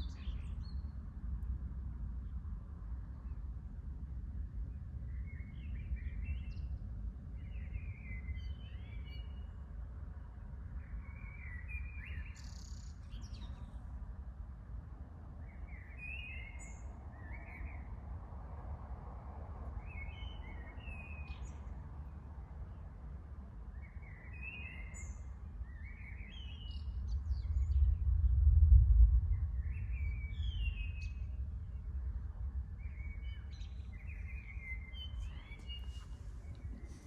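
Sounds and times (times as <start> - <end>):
steady low rumble: 26.7 - 37.0
birds chirping: 32.7 - 37.0.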